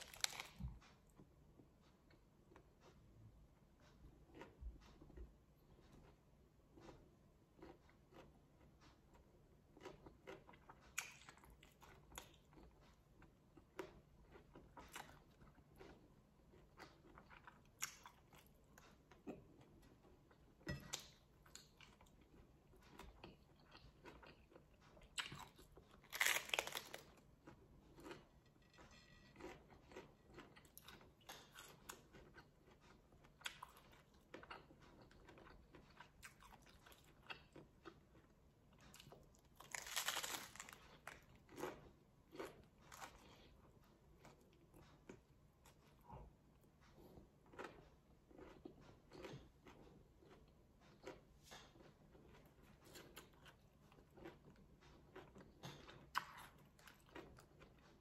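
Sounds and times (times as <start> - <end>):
lettuce crunching: 0.0 - 0.6, 25.1 - 28.3, 39.6 - 41.8.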